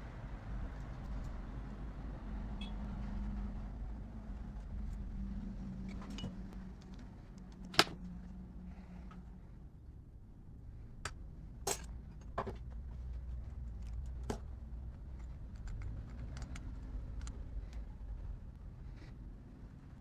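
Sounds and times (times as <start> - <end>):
metal parts and tools rattling: 11.7 - 12.6.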